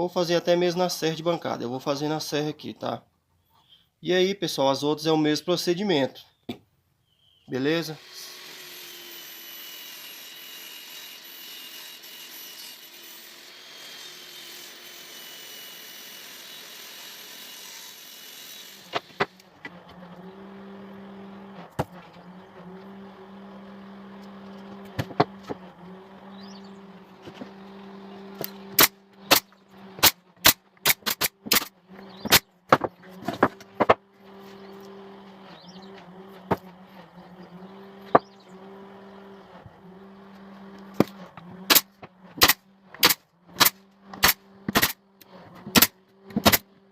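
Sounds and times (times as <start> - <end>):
table saw whining: 7.6 - 43.0
motor hum: 18.6 - 46.9.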